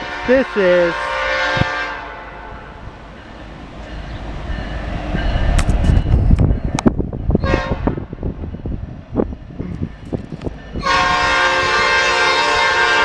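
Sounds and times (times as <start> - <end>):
locomotive air horn blast: 0.0 - 2.7, 7.4 - 8.0, 10.8 - 13.0
locomotive rumble: 0.0 - 13.0.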